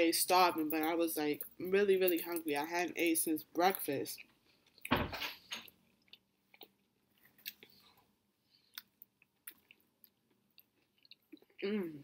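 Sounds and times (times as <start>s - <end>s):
person chewing bread: 4.2s - 12.0s.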